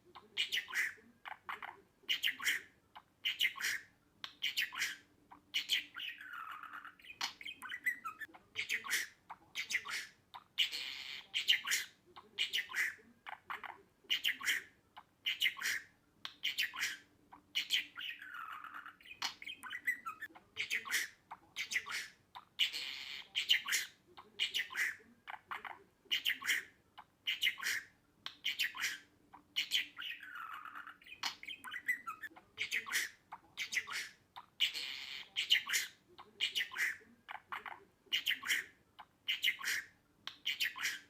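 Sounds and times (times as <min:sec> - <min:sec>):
budgerigar chattering: 0:00.2 - 0:41.0.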